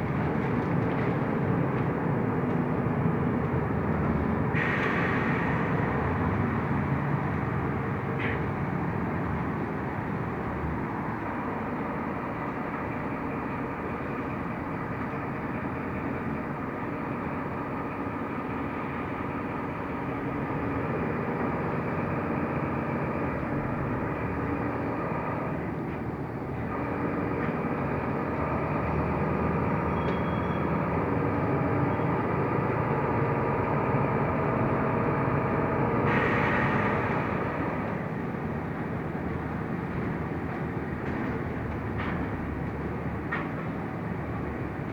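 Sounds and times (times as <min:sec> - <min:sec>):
bus engine and road noise: 0:00.0 - 0:44.9.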